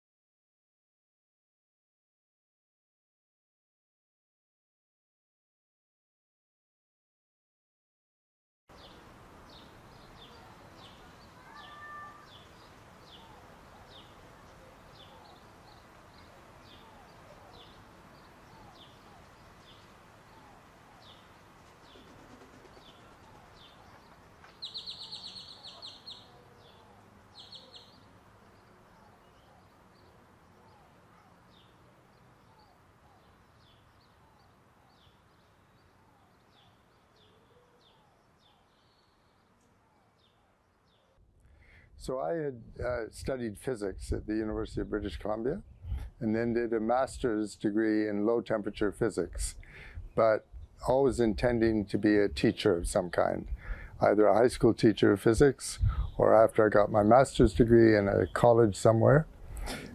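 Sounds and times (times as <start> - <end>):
small birds chirping: 8.7 - 42.0, 44.0 - 59.9
faint background noise: 8.7 - 59.9
buzzy bird trill: 8.8 - 39.2.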